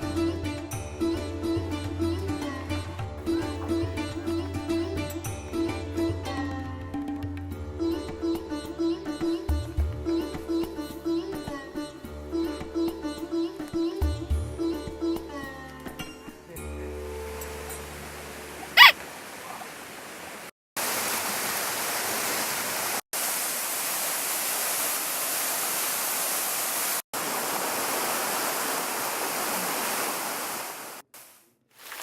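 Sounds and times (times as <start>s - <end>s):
rushing water: 16.9s - 31.0s, 31.8s - 32.0s
high-pitched cry: 18.8s - 19.0s.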